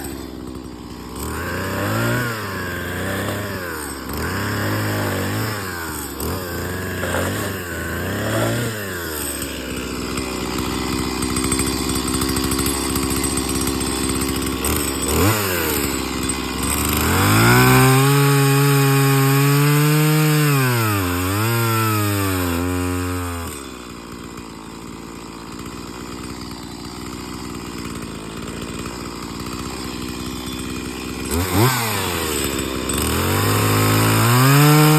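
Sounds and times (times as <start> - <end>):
chainsaw revving and cutting wood: 0.0 - 34.9.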